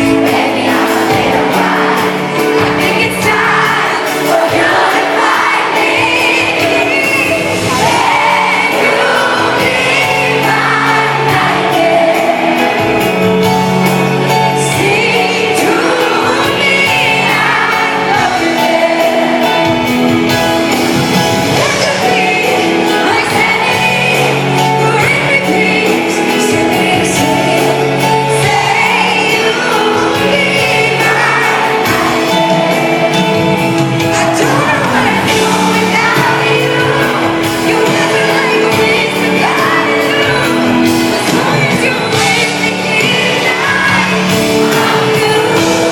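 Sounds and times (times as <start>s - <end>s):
woman singing pop ballad: 0.0s - 20.1s, 21.1s - 45.9s
sustained instrumental chords: 0.0s - 45.9s
audience shouting and whooping: 0.3s - 13.2s.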